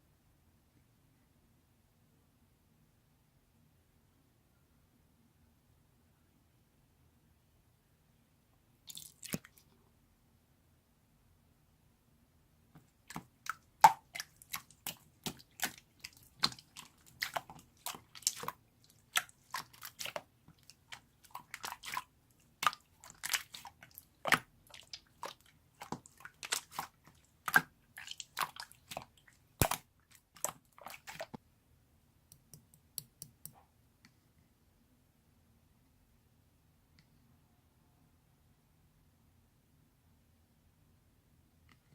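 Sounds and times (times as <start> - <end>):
slime sticky pops and crackles: 29.6 - 29.8.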